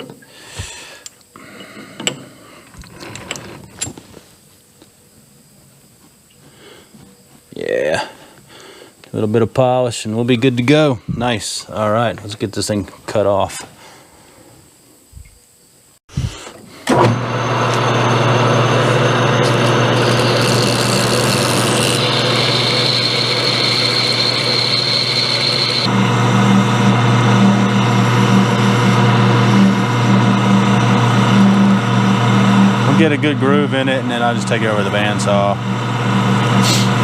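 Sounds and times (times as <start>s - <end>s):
high whine of cutting: 16.1s - 37.0s
metal lathe running: 16.9s - 37.0s.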